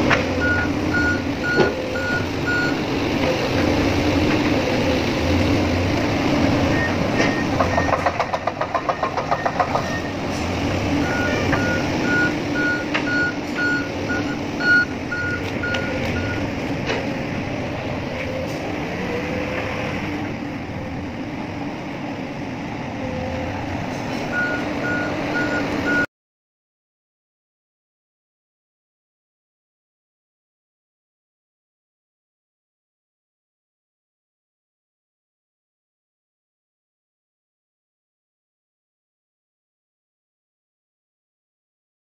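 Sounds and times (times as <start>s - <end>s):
heavy machinery engine running: 0.0s - 26.1s
backup alarm beeping: 0.4s - 2.8s, 11.0s - 16.5s, 24.3s - 26.1s.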